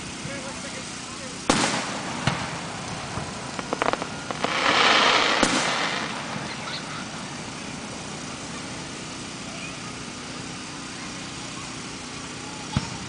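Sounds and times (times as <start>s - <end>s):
fireworks hissing: 0.0s - 13.0s
steady background noise: 0.0s - 13.0s
firework bang: 1.5s - 7.4s.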